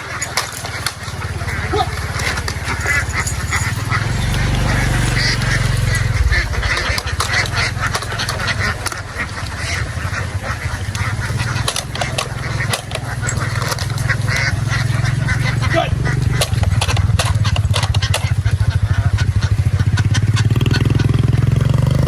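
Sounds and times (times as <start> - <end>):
ducks quacking: 0.0 - 21.8
low rumble: 1.3 - 20.2.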